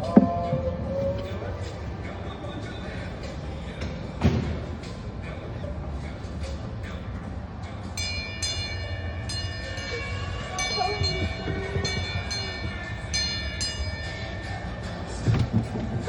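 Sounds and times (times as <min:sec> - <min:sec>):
low rumble of train running: 0:00.0 - 0:16.0
train bell ringing: 0:08.0 - 0:15.3.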